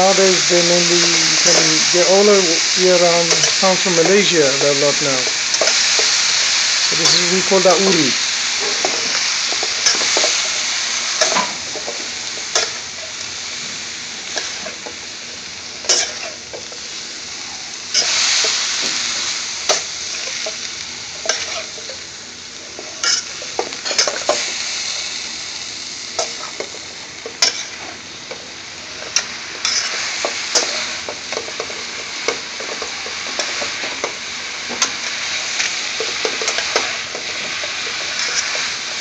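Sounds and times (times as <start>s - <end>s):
food sizzling in hot oil: 0.0s - 39.0s
metal spoon scraping pan: 15.9s - 16.4s, 29.1s - 31.8s.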